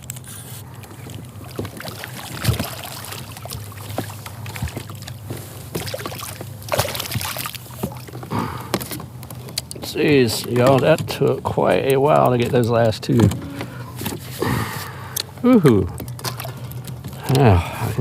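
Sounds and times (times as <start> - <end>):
water splashing against kayak: 0.4 - 17.5
gear knocking on hull: 3.9 - 14.6.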